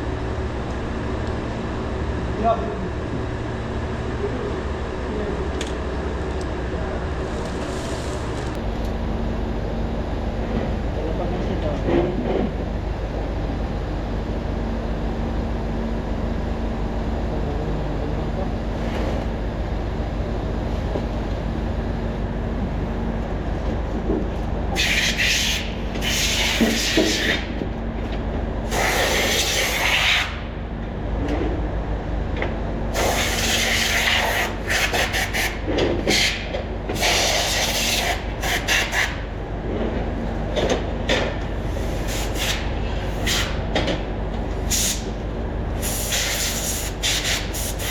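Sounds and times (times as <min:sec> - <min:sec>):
machinery hum: 0:00.0 - 0:47.9
loud hissing spray: 0:24.8 - 0:27.4, 0:32.9 - 0:35.5, 0:44.7 - 0:45.0, 0:45.8 - 0:47.9.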